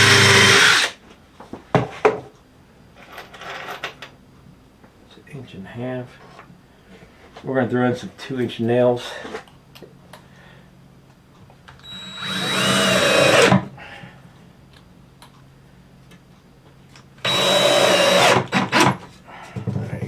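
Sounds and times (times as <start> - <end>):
power tool whirring: 0.0 - 1.0, 11.8 - 13.7, 17.2 - 19.0.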